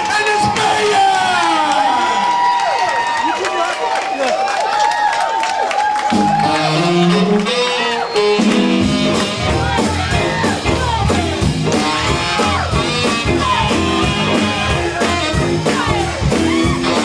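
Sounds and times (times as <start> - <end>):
distorted live band music: 6.0 - 17.0
low bass line: 8.5 - 17.0.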